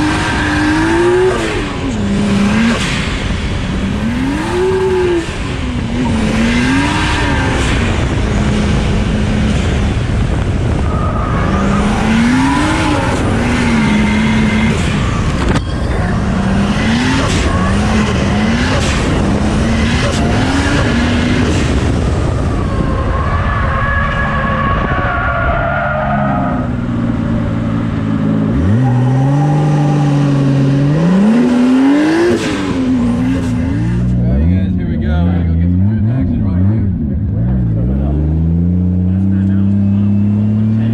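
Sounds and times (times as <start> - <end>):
tires squealing: 0.0 - 8.8, 9.5 - 27.9, 28.5 - 34.6
car engine revving hard: 0.0 - 23.4, 24.0 - 40.9.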